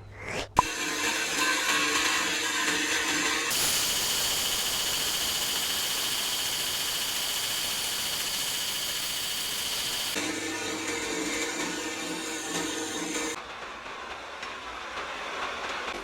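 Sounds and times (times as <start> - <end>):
steady high hiss with whistle: 3.5 - 10.2.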